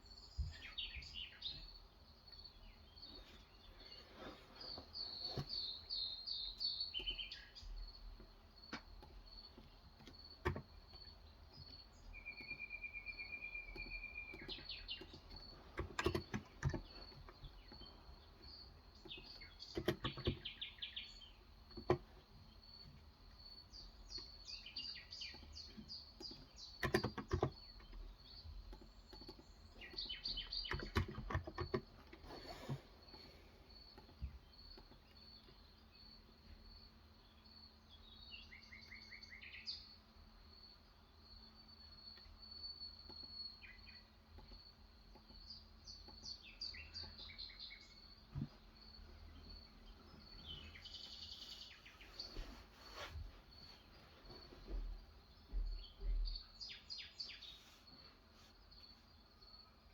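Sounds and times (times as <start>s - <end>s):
birds chirping and trilling: 0.0s - 58.2s
typing on a keyboard: 13.7s - 16.9s, 26.2s - 28.0s, 28.7s - 31.9s.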